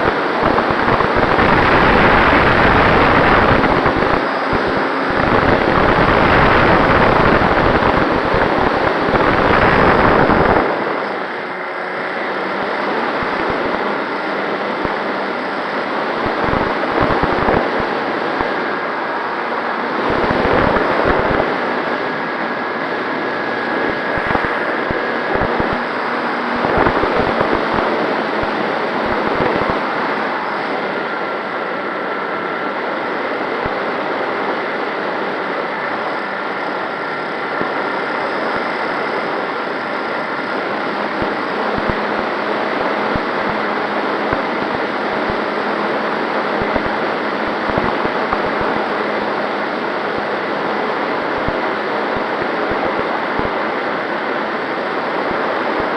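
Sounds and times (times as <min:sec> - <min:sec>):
air rushing over microphone: 0:00.0 - 0:11.2, 0:19.8 - 0:30.2
low wind buffeting: 0:00.0 - 0:11.7
faint motor and propeller whine: 0:00.0 - 0:55.9.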